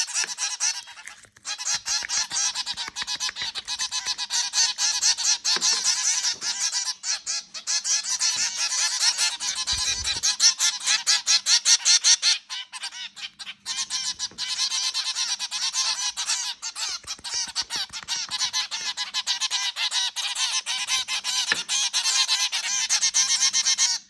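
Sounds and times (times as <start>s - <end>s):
zebra finches calling: 0.0s - 24.0s.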